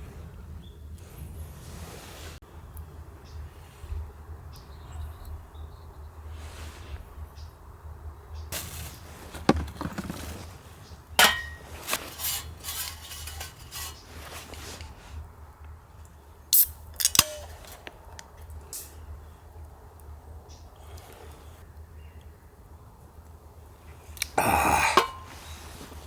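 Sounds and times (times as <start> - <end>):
metal cookware clinking: 11.2 - 14.1, 24.8 - 25.6.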